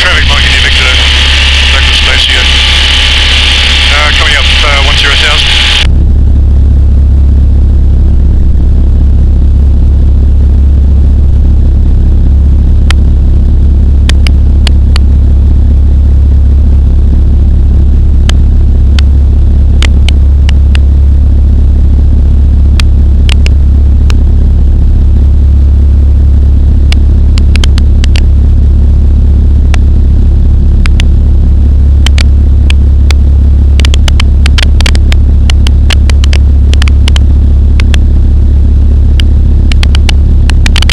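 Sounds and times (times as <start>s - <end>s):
microlight engine and propeller drone: 0.0s - 40.9s
sharp clicks: 26.9s - 28.2s, 30.8s - 31.1s, 32.0s - 33.2s, 33.8s - 38.0s, 39.2s - 40.9s.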